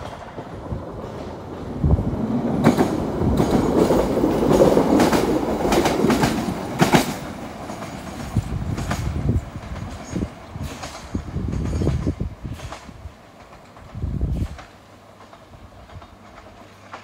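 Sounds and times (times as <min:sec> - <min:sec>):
electric train passing: 0:00.0 - 0:17.0
wheels clacking over rail joints: 0:00.0 - 0:17.0.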